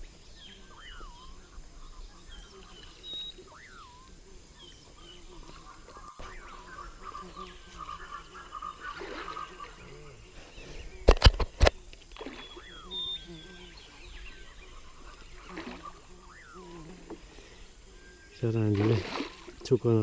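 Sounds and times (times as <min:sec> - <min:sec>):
faint forest hum: 0:00.0 - 0:20.0
whistled animal calls: 0:00.4 - 0:05.2, 0:12.3 - 0:17.0.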